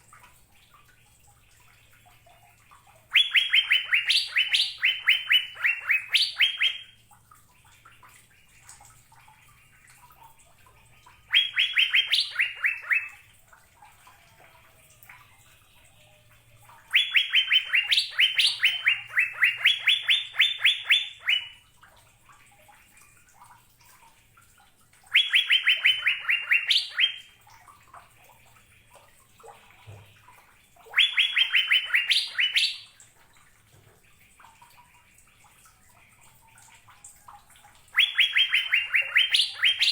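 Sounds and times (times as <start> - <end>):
bird singing repeated notes: 3.1 - 7.0, 11.2 - 13.2, 16.8 - 21.6, 25.1 - 27.3, 30.9 - 33.0, 37.9 - 39.9.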